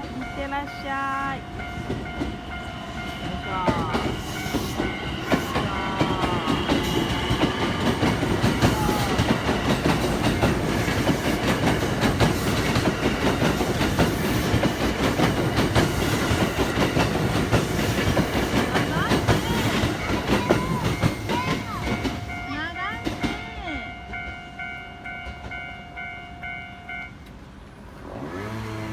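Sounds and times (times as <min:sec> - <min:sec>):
electric train rumbling: 0:00.0 - 0:28.9
faint train whine: 0:00.0 - 0:28.9
wheels clicking over rail joints: 0:01.5 - 0:27.4.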